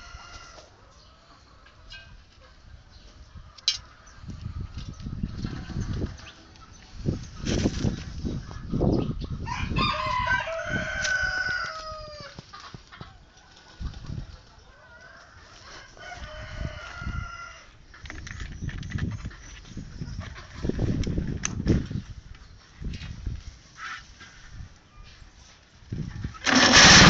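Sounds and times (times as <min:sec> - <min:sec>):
rooster crowing: 0:09.5 - 0:12.4, 0:14.8 - 0:17.7.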